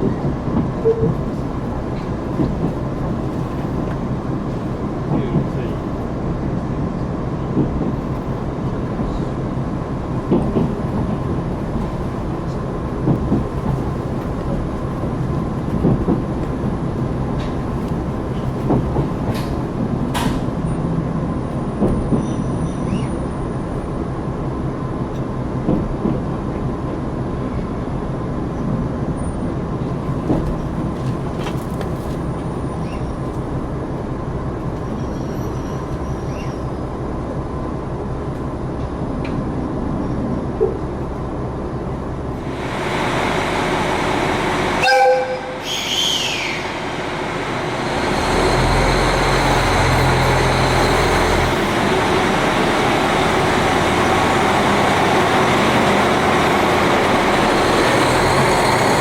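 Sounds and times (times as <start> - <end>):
train engine drone: 0.0 - 59.0
wheels knocking on track: 10.1 - 20.5.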